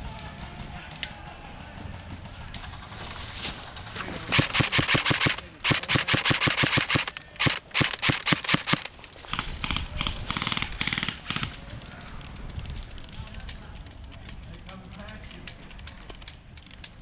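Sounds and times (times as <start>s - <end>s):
airsoft guns firing full auto: 2.4s - 12.2s.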